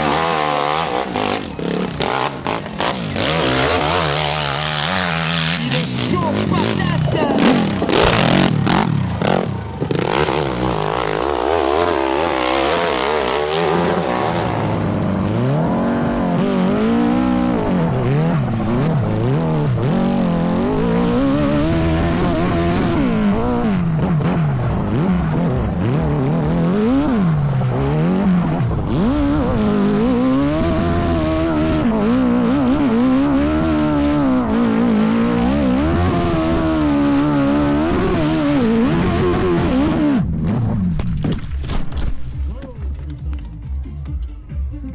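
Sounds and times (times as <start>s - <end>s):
dirt bike engines revving: 0.0s - 44.9s.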